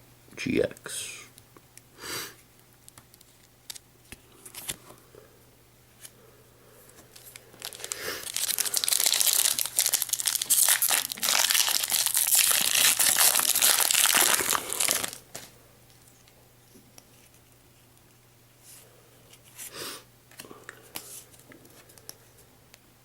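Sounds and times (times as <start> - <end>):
foil wrapper crinkling and tearing: 7.1 - 15.4.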